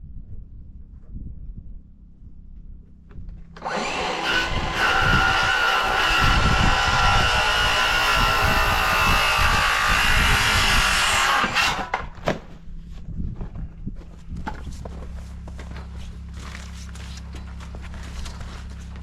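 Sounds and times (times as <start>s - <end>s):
electric saw cutting board: 3.6s - 12.2s.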